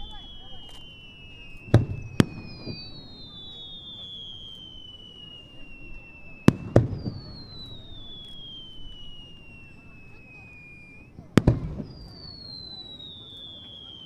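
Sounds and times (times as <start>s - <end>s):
distant firework bangs: 0.0s - 14.0s
firework whistling: 0.0s - 14.0s.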